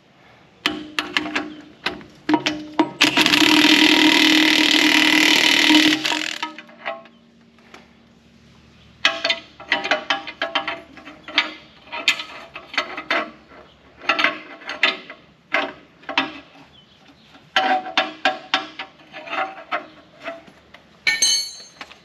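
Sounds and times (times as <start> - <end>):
metal tools clanking: 17.5 - 22.0.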